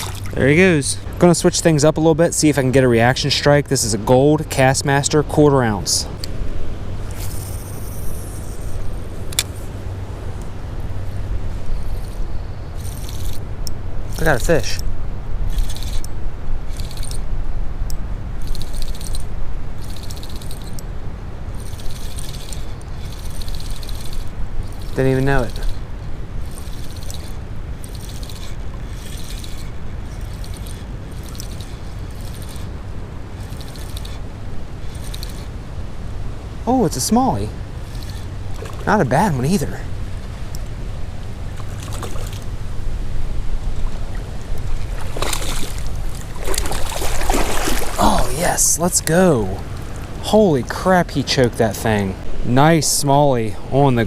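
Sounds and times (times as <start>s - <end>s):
river water rushing: 0.0s - 0.4s, 43.6s - 50.6s
river current rushing: 0.0s - 1.2s, 21.4s - 54.0s
wind rumbling on microphone: 0.0s - 54.0s
fishing reel clicking: 12.8s - 14.8s, 15.5s - 16.1s, 16.7s - 17.2s, 18.4s - 20.9s, 21.6s - 25.8s, 26.4s - 32.7s, 33.4s - 34.2s, 34.9s - 35.5s, 37.8s - 38.3s.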